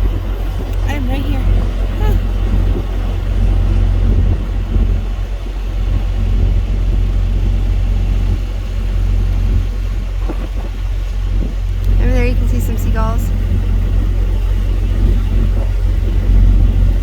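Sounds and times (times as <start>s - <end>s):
loud low rumble: 11.0s - 17.0s.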